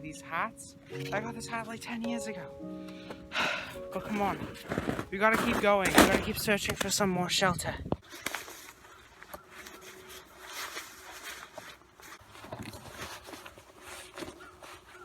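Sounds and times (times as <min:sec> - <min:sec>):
faint rustling and scuffing: 0:03.7 - 0:07.0, 0:08.0 - 0:15.0.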